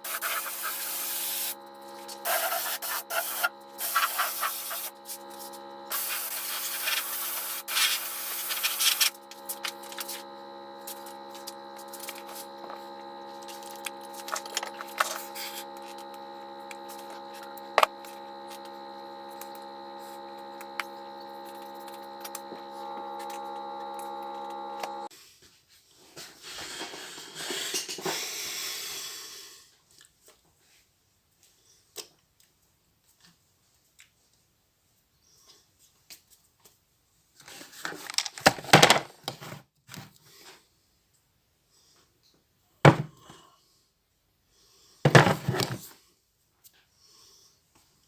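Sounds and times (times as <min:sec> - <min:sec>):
hissing spray bursts: 0:00.0 - 0:10.2
electric motor hum: 0:00.0 - 0:25.1.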